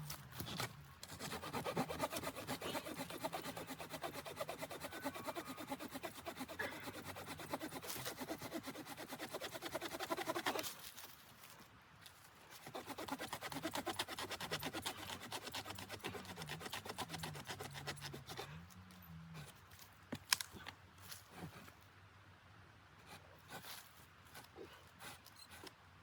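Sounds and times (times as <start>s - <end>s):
hand saw cutting wood: 0.4s - 10.8s, 12.5s - 18.7s.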